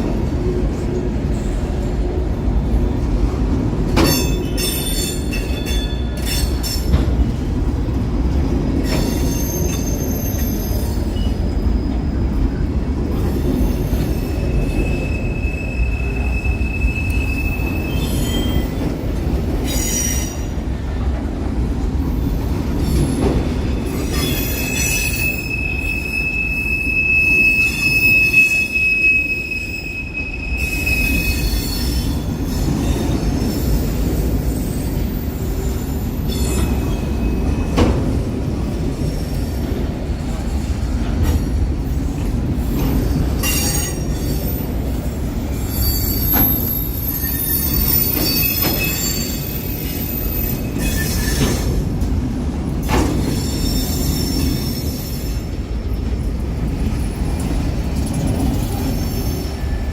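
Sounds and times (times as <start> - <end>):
freight train cars rumbling: 0.0 - 59.9
train cars clanking: 0.0 - 59.9
steel wheel squeal: 8.8 - 12.2, 13.3 - 18.8, 22.8 - 38.0, 42.7 - 51.8, 53.0 - 55.5, 58.1 - 59.9.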